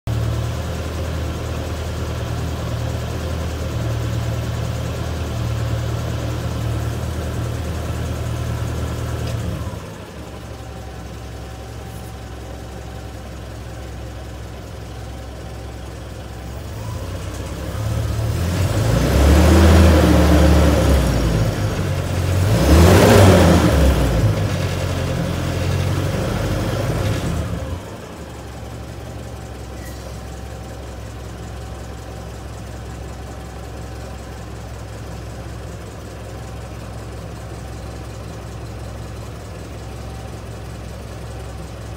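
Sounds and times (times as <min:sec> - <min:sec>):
vehicle engine idling and revving: 0:00.0 - 0:41.9.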